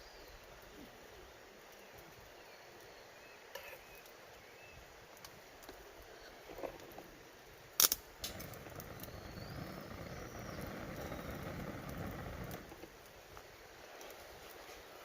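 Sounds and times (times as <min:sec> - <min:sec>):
fire crackling: 0:00.0 - 0:15.0
firewood popping: 0:05.0 - 0:15.0.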